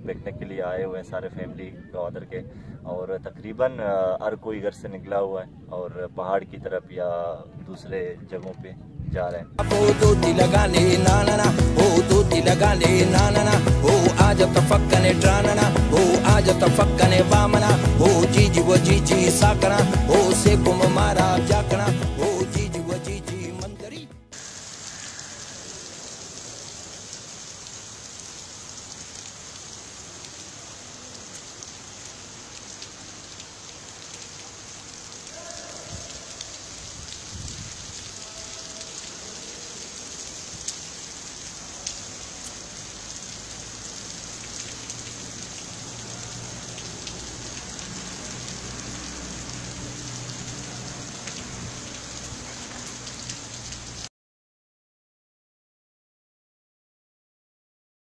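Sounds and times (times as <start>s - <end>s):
rain hissing: 9.6s - 23.0s, 24.3s - 54.1s
faint taps of raindrops: 31.1s - 31.8s, 40.4s - 48.6s, 50.4s - 54.0s.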